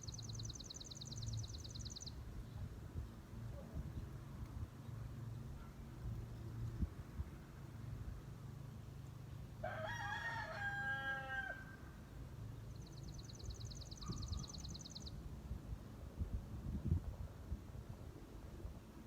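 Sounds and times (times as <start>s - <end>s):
songbird trilling: 0.0s - 2.2s, 12.7s - 15.2s
rooster crowing: 9.6s - 11.9s.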